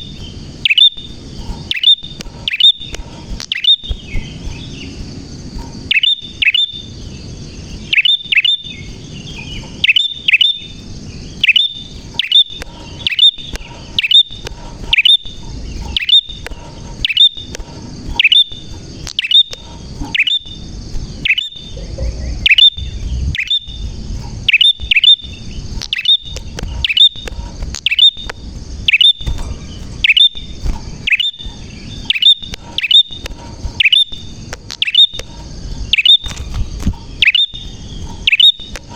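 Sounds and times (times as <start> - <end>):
bird chirping calls: 0.0 - 38.9.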